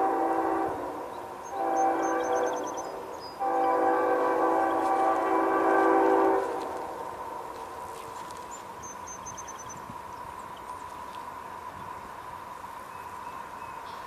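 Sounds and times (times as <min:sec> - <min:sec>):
birds chirping: 0:00.9 - 0:05.8, 0:08.0 - 0:14.0.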